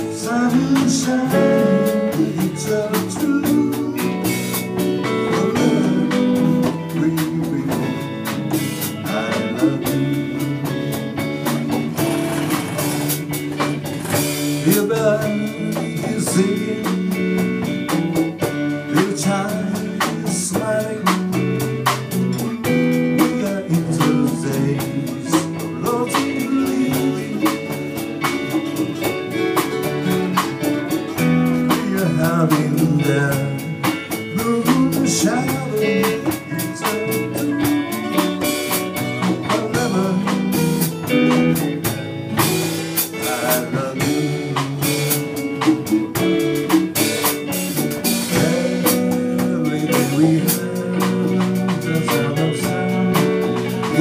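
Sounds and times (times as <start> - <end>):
drum kit: 0.0 - 54.0
guitar: 0.0 - 54.0.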